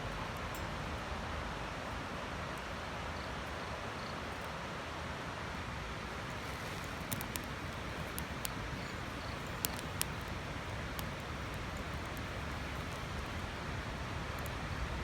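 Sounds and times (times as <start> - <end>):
twig fire crackling: 5.9 - 15.0.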